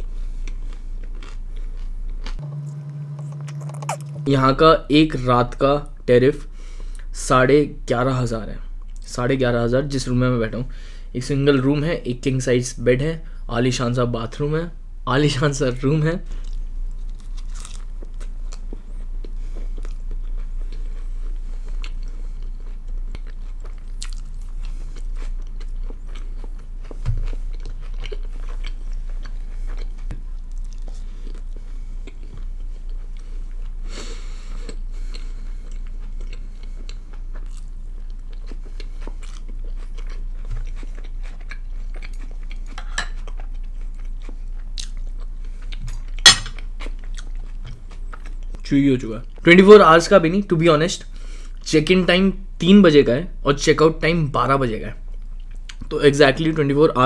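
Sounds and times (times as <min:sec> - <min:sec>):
close chewing with mouth sounds: 0:00.0 - 0:02.4, 0:16.3 - 0:49.5, 0:55.0 - 0:55.9
low hum: 0:00.0 - 0:05.2.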